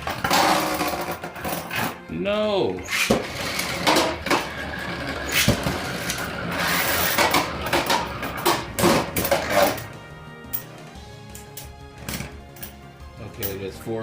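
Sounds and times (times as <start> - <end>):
spinning tops whirring: 2.8 - 9.9.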